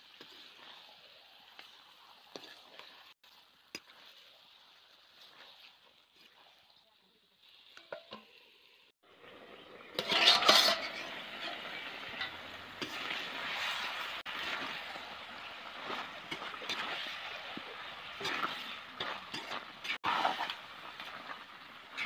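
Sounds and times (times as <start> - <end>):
chicken sizzling in a pan: 0.0 - 22.0
metal spatula scraping pan: 10.0 - 14.6, 15.9 - 17.2, 18.2 - 20.6.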